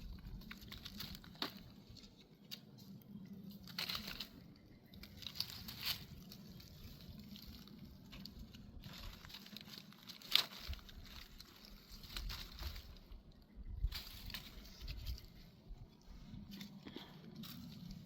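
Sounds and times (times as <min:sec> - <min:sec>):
paper rustling and crinkling: 0:00.0 - 0:02.7, 0:05.0 - 0:13.2.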